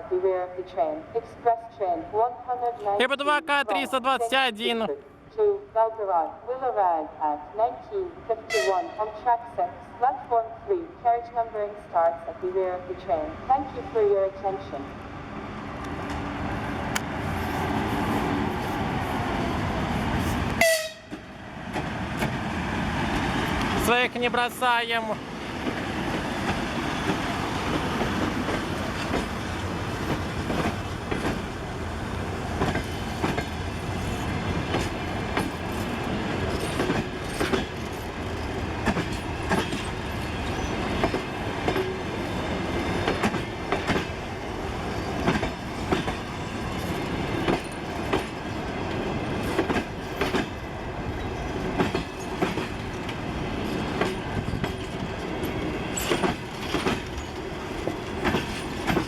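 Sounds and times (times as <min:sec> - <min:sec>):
train rumble: 0:12.9 - 0:59.0
train wheels clicking over rail joints: 0:25.4 - 0:59.0.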